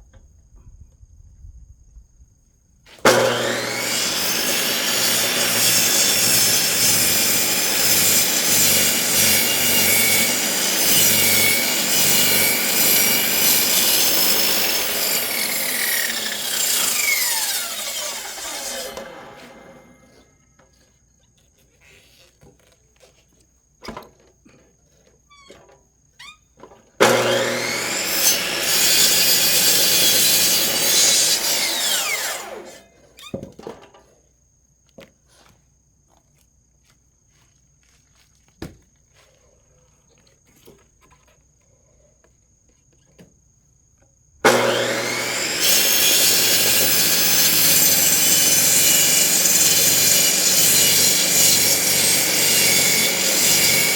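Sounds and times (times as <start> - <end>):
chop saw cutting firewood: 2.9 - 20.3, 27.0 - 32.9, 44.4 - 53.9.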